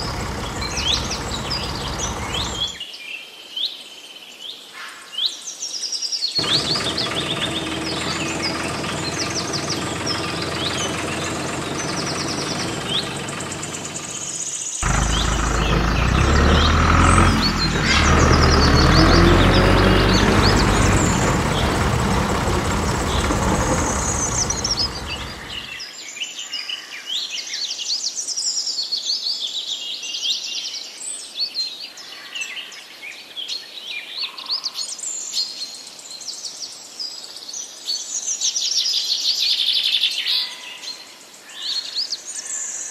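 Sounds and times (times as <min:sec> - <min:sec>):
birds chirping: 0:00.0 - 0:02.8, 0:06.4 - 0:25.7
loud low rumbling: 0:00.0 - 0:02.8, 0:06.4 - 0:25.7
small motor humming: 0:00.0 - 0:02.8, 0:06.4 - 0:25.7.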